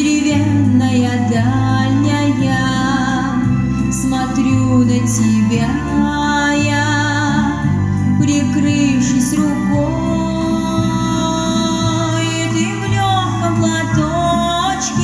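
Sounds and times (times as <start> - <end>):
instrumental backing with bass: 0.0 - 15.0
woman singing: 0.0 - 15.0.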